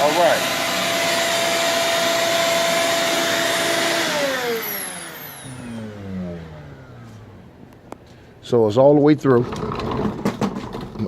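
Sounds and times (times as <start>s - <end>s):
vacuum cleaner motor whining: 0.0s - 8.0s.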